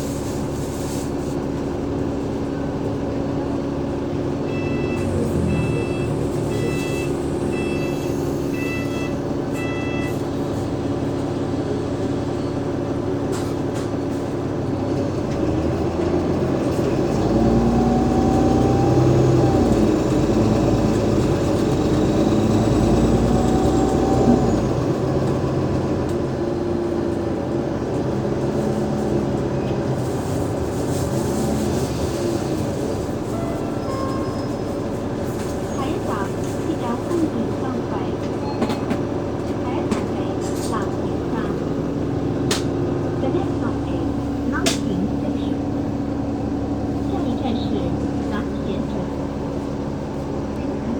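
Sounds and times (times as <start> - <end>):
bus diesel engine accelerating: 0.0 - 50.9
short electronic beeps: 4.5 - 10.2.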